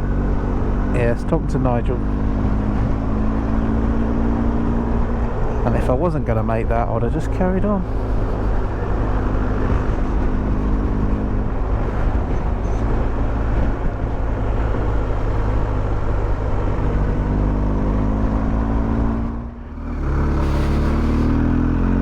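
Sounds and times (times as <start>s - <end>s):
wind noise: 0.0s - 22.0s
motorcycle engine running: 7.0s - 22.0s.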